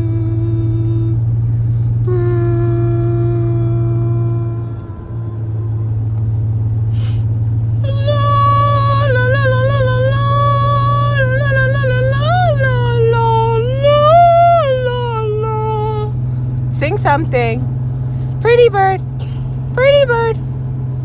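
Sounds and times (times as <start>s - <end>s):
person humming: 0.0s - 1.2s, 2.1s - 6.0s
steady low hum: 0.0s - 21.0s.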